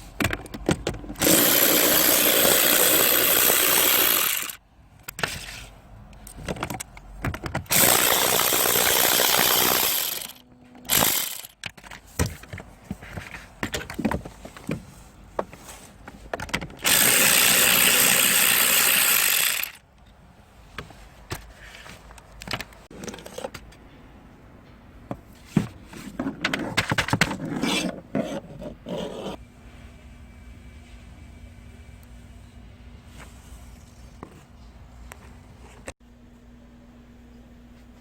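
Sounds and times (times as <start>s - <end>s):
low steady hum: 4.4s - 16.7s, 28.0s - 38.0s
hand tools clicking and rattling: 6.3s - 12.1s.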